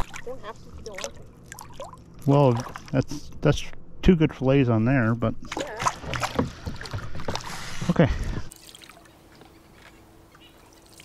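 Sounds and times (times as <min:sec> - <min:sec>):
faint hum: 0:00.0 - 0:11.0
water splashing at a canoe: 0:05.5 - 0:10.0.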